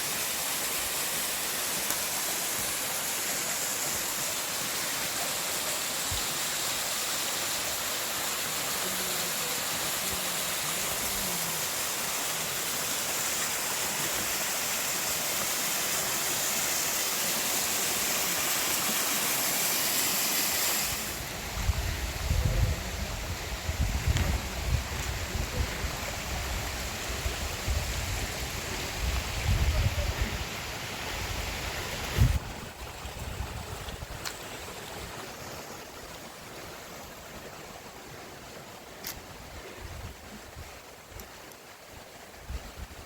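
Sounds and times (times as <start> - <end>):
river water flowing: 0.0 - 43.0
wind rumble on microphone: 21.2 - 30.5, 31.2 - 34.2.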